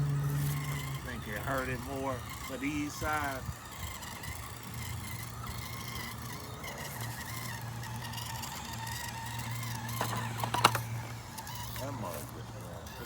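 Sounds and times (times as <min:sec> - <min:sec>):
electric motor whining: 0:00.0 - 0:13.0
sharp clicks and knocks: 0:09.6 - 0:11.5.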